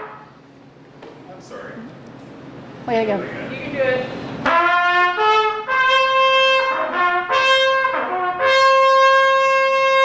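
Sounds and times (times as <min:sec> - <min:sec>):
shofar blasts: 0:00.0 - 0:00.4, 0:04.4 - 0:10.0.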